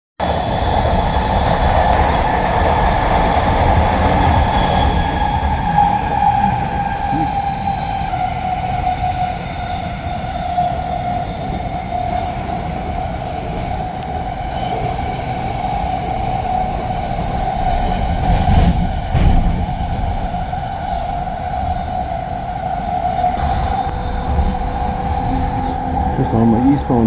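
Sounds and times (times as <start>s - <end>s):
train motor high whine: 0.2s - 27.0s
train wheels rumbling on rails: 0.2s - 27.0s
train car jolts: 14.5s - 22.4s.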